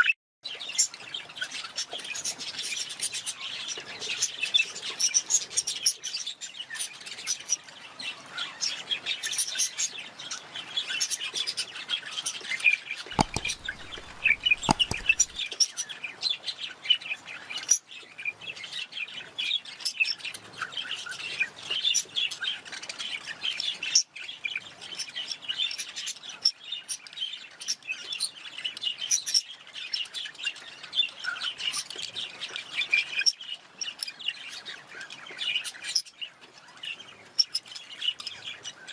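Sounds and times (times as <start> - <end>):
sharp clicks: 13.2 - 15.4.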